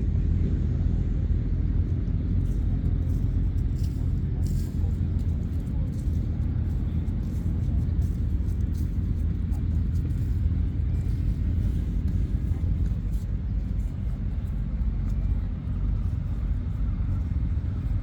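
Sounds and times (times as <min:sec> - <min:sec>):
motorcycle engines rumbling: 0:00.0 - 0:18.0.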